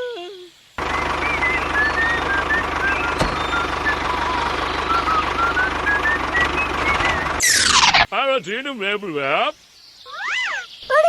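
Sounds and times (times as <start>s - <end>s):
small motor humming: 0.8s - 7.9s
faint wavering whistle: 1.0s - 8.1s.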